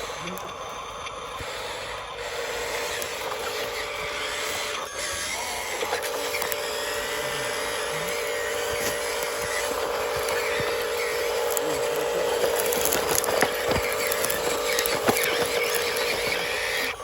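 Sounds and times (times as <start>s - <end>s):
small electric motor whining: 0.0s - 17.0s.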